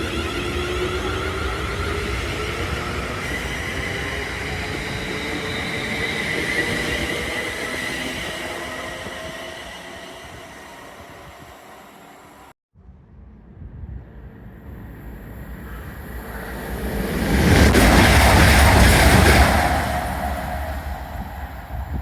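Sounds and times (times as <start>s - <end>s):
train rumbling by: 0.0s - 12.5s, 13.2s - 22.0s
high whining tone: 14.7s - 22.0s.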